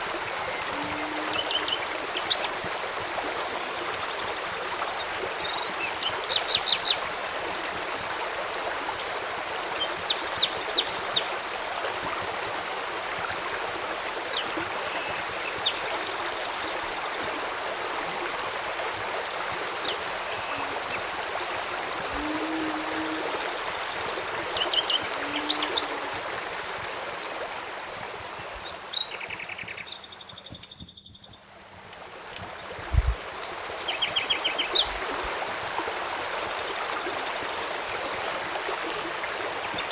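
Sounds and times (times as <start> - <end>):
birds chirping: 0.0 - 2.8, 19.8 - 31.5
stream water flowing: 0.0 - 30.8, 31.4 - 39.9.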